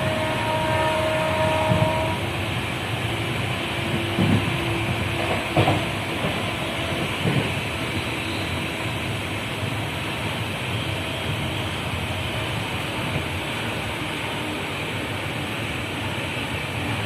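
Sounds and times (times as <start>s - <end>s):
train rumbling along track: 0.0s - 17.0s
short knocks of train wheels: 3.9s - 7.6s.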